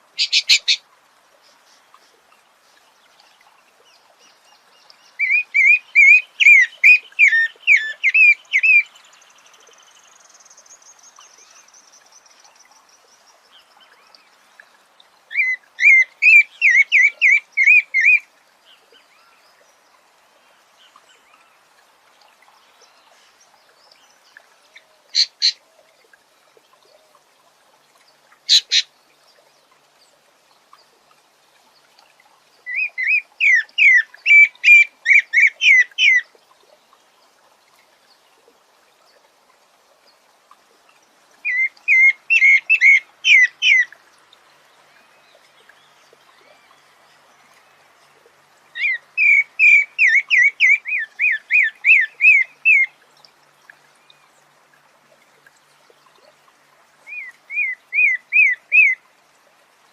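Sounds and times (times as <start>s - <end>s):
sharp single bird calls: 0.2s - 0.8s
bird whistled song phrases: 5.2s - 8.9s, 57.1s - 59.0s.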